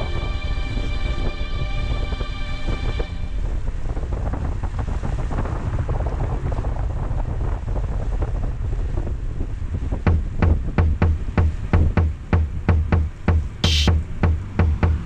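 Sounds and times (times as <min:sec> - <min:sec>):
road rumble: 0:00.0 - 0:15.0
music with drum-machine beat: 0:10.1 - 0:15.0
rain striking vehicle: 0:10.4 - 0:15.0.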